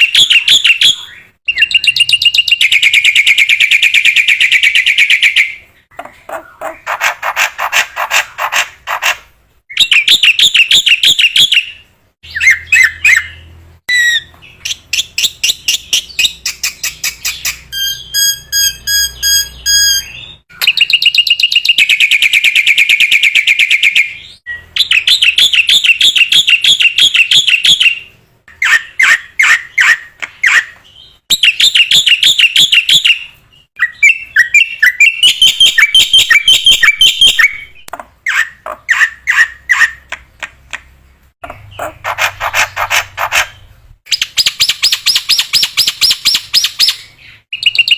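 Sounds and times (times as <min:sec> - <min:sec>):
bird chattering: 0:38.3 - 0:47.9.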